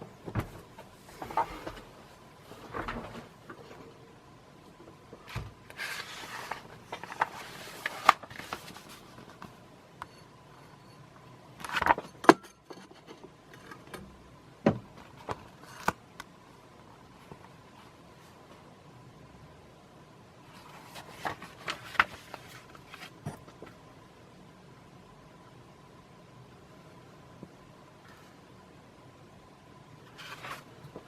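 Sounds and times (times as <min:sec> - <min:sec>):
paper pages rustling: 0:05.7 - 0:09.6, 0:20.6 - 0:23.2, 0:30.1 - 0:31.0.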